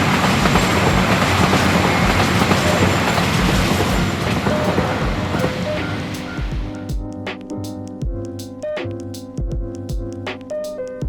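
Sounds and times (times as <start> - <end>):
train carriage rumbling: 0.0 - 6.8.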